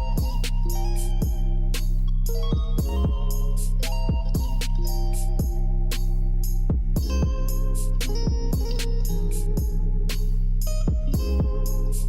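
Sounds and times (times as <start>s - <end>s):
hip hop beat with plucked guitar: 0.0s - 12.0s.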